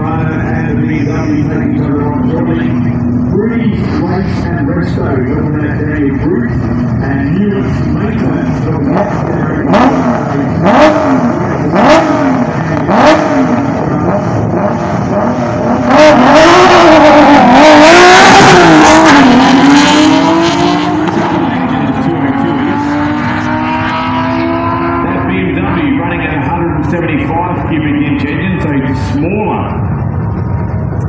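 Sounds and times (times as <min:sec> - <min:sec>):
drag car engines revving: 0:00.0 - 0:31.0.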